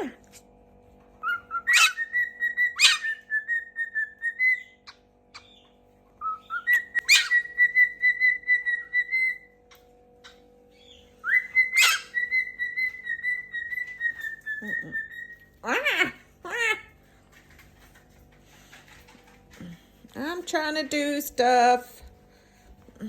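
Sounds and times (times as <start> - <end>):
cockatoo chirp: 1.2 - 9.5, 10.2 - 16.9
cockatoo whistling: 11.2 - 15.4.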